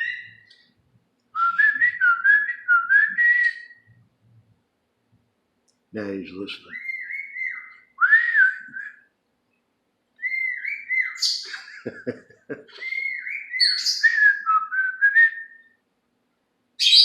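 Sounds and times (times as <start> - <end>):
pet bird whistling and chirping: 0.0 - 0.5, 6.7 - 8.8, 10.2 - 11.6, 12.8 - 14.8, 16.8 - 17.0.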